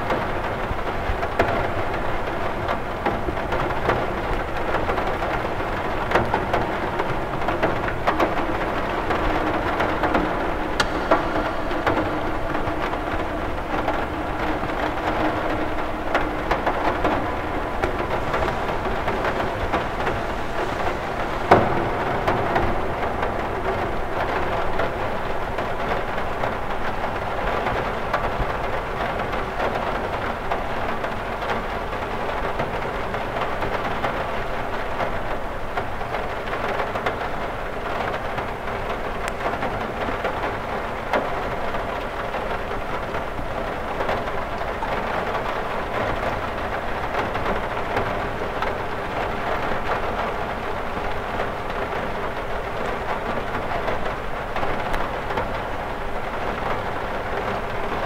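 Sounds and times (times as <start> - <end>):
rain on window glass: 0.0 - 58.0
single sharp raindrop: 3.0 - 31.1.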